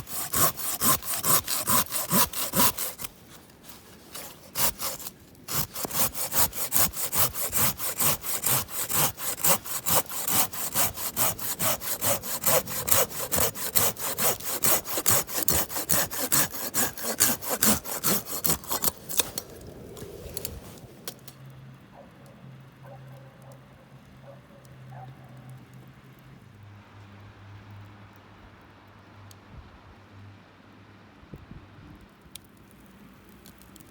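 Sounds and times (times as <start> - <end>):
hand saw cutting wood: 0.0 - 21.2.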